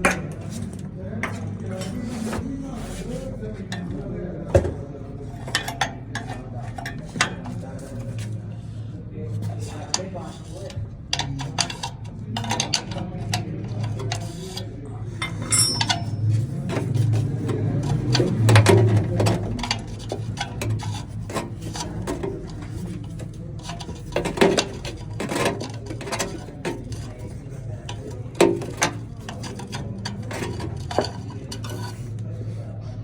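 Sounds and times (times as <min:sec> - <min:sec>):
hand tools scraping on metal: 0:00.0 - 0:03.8, 0:05.3 - 0:32.6
sharp metal clinks: 0:15.2 - 0:16.2.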